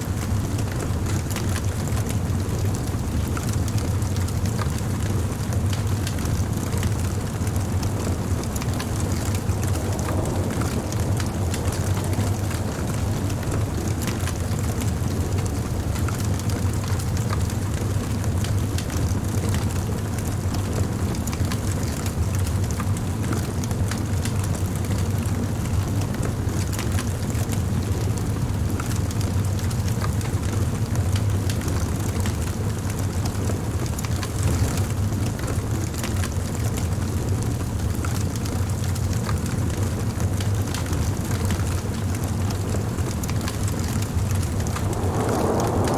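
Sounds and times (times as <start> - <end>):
wood fire crackling: 6.8 - 15.9, 44.2 - 45.9.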